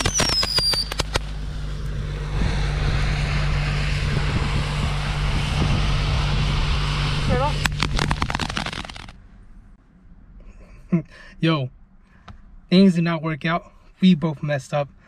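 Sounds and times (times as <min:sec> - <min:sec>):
fireworks crackling: 0:00.0 - 0:01.4, 0:07.5 - 0:09.1
car engine running: 0:00.0 - 0:09.7.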